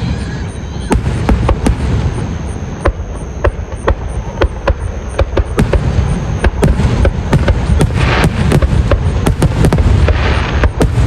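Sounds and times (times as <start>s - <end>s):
continuous low rumble: 0.0s - 11.0s
firework bangs: 0.0s - 11.0s.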